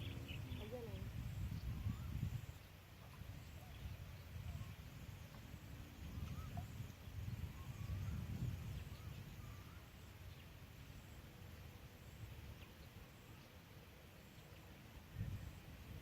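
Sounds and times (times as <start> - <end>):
low rumble on microphone: 0.0 - 10.4, 15.0 - 16.0
faint bird chirps: 0.0 - 15.7.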